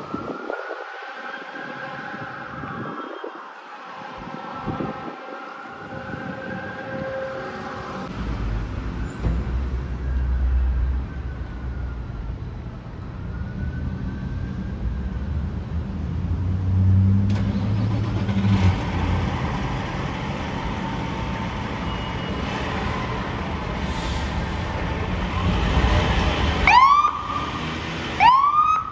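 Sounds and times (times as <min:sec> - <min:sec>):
faint siren wailing: 0:00.0 - 0:08.1, 0:09.9 - 0:15.4, 0:17.4 - 0:28.9
fire truck engine pulling out: 0:16.7 - 0:28.9.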